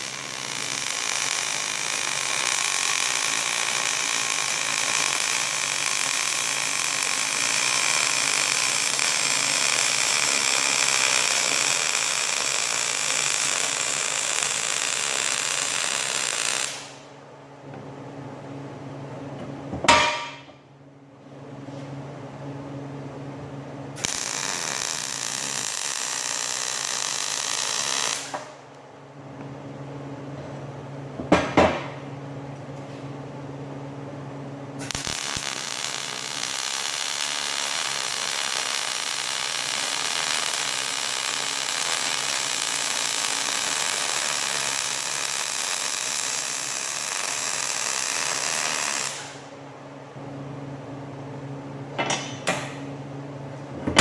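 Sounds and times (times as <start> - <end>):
sharp metal knocks: 19.8 - 20.6.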